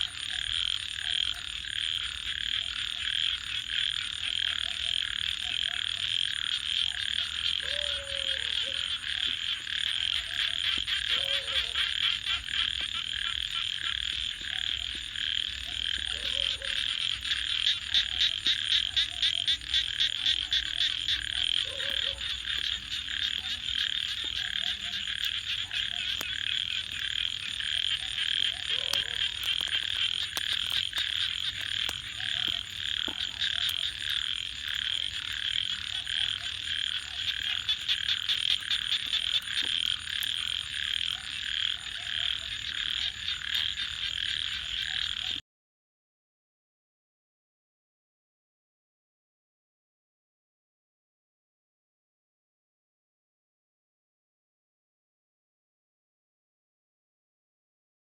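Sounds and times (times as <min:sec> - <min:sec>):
frogs trilling: 0:00.0 - 0:45.4
short low frog croaks: 0:00.0 - 0:45.4
loud fast-pulsed frog trill: 0:14.7 - 0:45.4.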